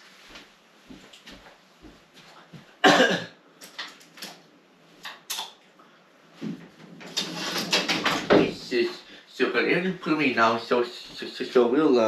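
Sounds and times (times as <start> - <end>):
person coughing: 2.8 - 3.4.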